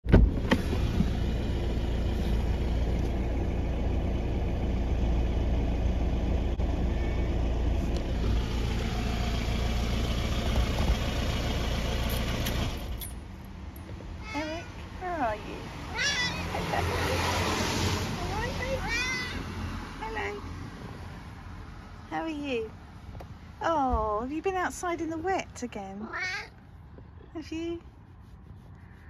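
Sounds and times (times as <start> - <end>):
car engine idling: 0.3 - 17.1.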